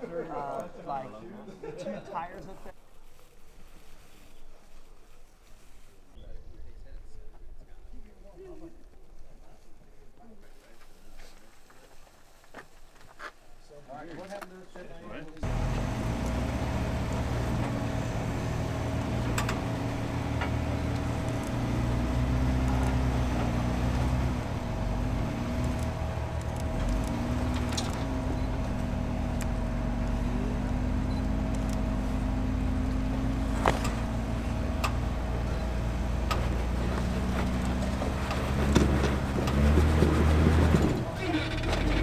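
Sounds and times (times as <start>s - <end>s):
engine running at low revs: 15.4s - 42.0s.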